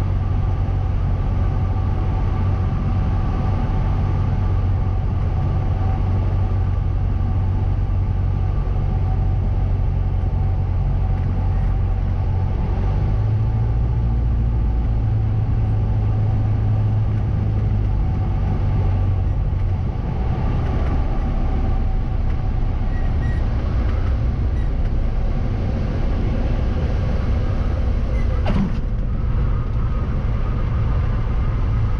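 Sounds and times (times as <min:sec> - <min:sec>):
propeller plane engine droning: 0:00.0 - 0:31.9.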